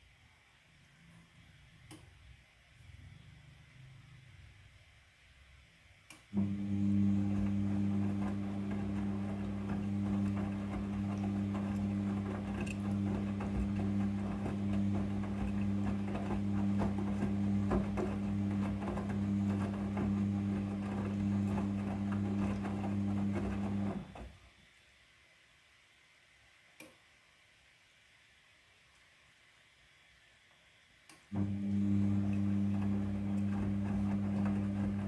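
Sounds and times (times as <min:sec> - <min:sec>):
washing machine humming: 0:06.4 - 0:24.5, 0:31.3 - 0:35.0.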